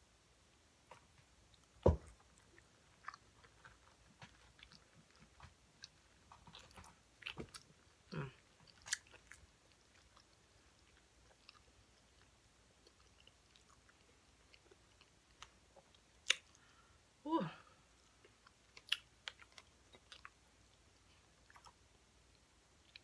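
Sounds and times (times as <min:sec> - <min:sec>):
person chewing crispy fish: 0:02.3 - 0:16.7, 0:18.2 - 0:20.4.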